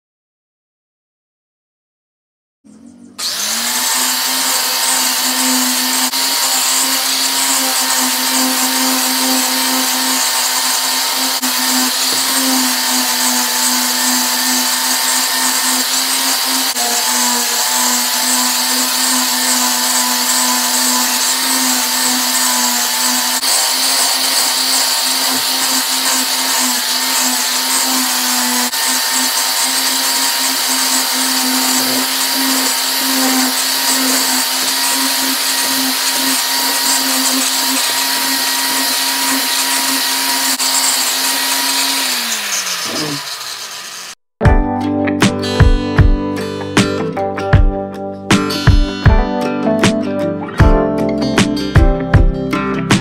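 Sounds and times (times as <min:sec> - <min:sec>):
power tool motor running: 0:02.7 - 0:44.2.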